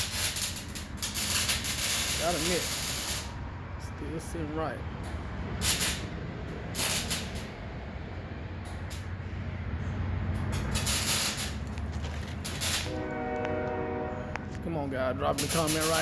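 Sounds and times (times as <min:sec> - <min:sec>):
air hiss bursts: 0:00.0 - 0:03.4, 0:05.6 - 0:06.1, 0:06.7 - 0:07.6, 0:10.6 - 0:11.7, 0:12.4 - 0:13.0
shop machinery hum: 0:00.0 - 0:16.0.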